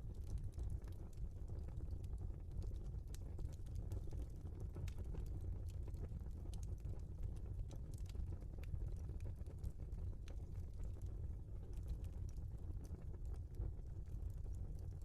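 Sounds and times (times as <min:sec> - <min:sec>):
log fire crackling: 0:00.0 - 0:15.0.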